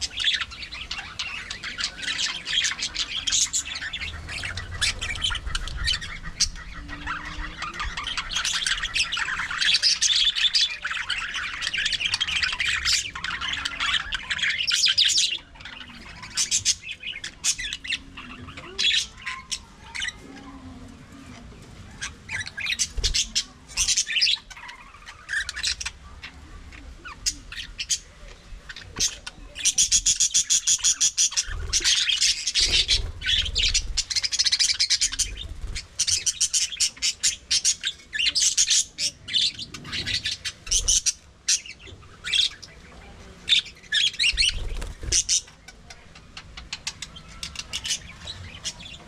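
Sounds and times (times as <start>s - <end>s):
budgerigars chirping and chattering: 0.0s - 49.0s.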